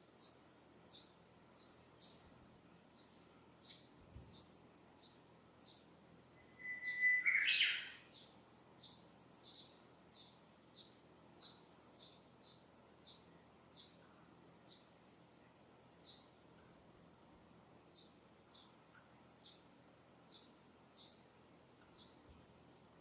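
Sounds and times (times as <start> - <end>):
birds chirping: 0.2 - 2.2, 2.8 - 14.0, 14.6 - 16.4, 17.9 - 22.3
bird whistling song: 6.4 - 8.2.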